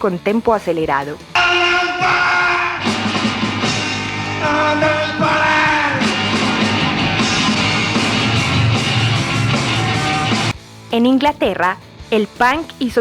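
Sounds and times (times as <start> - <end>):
punk rock song: 1.0 - 12.2
person shouting vocals: 1.4 - 2.9.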